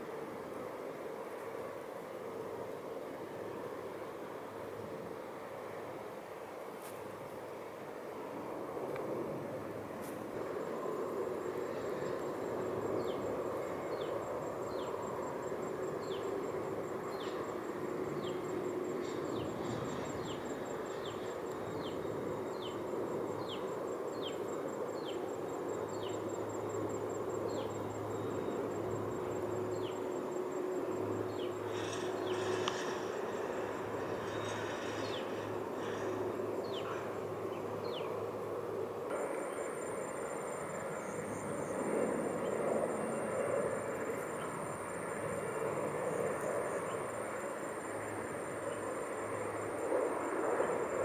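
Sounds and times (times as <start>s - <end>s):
insects trilling: 10.4s - 51.0s
rustling hiss: 25.6s - 51.0s.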